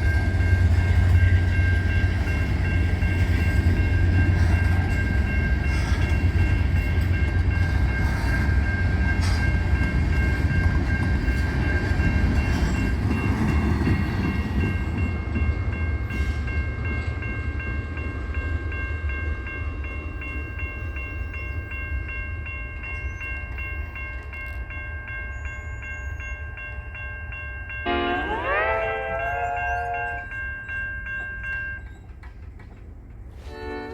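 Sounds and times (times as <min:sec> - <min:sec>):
crossing bell ringing: 0:00.0 - 0:32.4
freight train rumbling: 0:00.0 - 0:33.9
locomotive horn: 0:27.9 - 0:30.3, 0:33.4 - 0:33.9.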